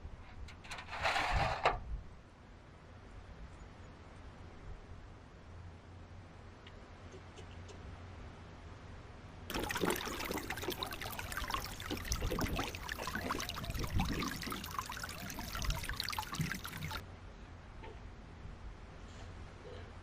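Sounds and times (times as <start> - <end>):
water pouring and trickling: 9.5 - 17.0.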